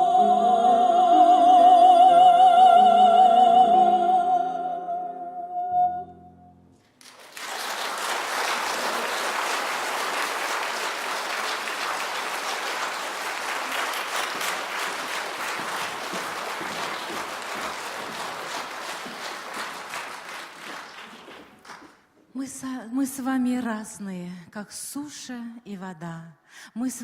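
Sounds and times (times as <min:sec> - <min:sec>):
audience applauding: 0:06.9 - 0:22.1.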